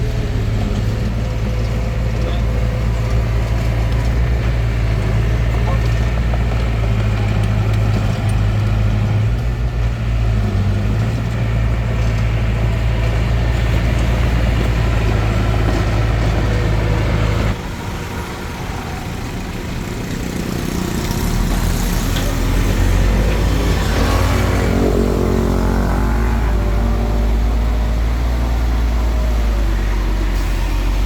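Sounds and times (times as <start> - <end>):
bulldozer diesel engine running: 0.0 - 31.0.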